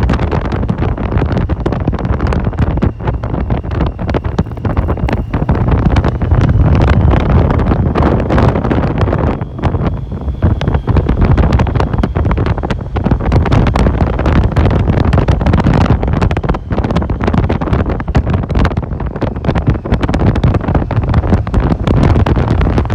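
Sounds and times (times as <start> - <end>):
wind buffeting microphone: 0.0 - 22.9
faint high whine: 2.3 - 14.2.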